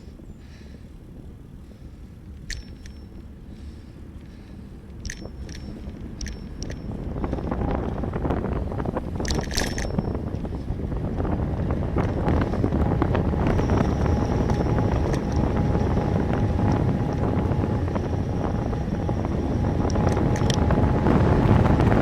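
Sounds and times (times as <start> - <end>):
wind buffeting microphone: 0.0 - 22.0
small clicks and rattles: 2.3 - 3.3, 4.2 - 10.7, 13.4 - 18.9, 19.8 - 20.7.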